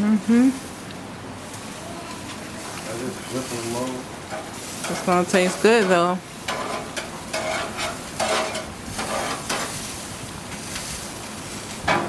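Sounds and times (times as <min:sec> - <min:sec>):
patties sizzling on a grill: 0:00.0 - 0:12.0.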